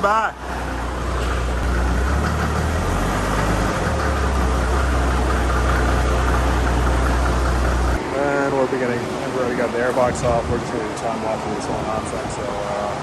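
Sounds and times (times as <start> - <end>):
engine idling: 0.0 - 8.1.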